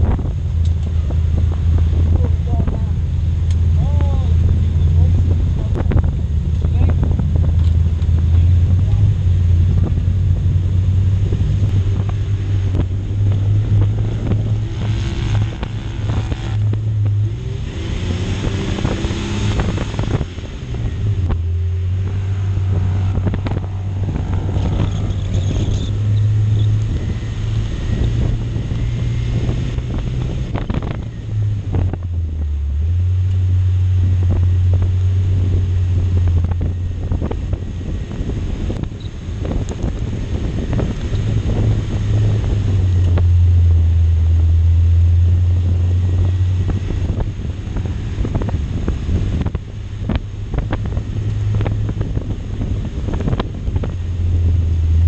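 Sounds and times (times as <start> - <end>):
car engine under load: 0.0 - 55.0
wind buffeting microphone: 0.0 - 55.0.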